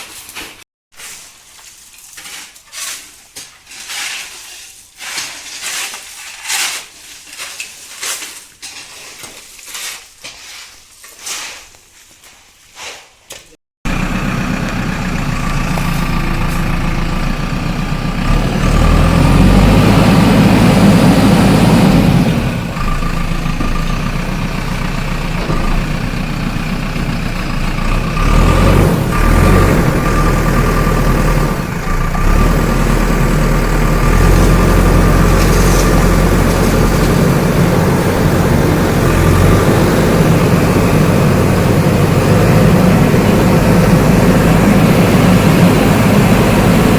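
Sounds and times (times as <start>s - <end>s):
diesel engine running: 13.9s - 46.9s.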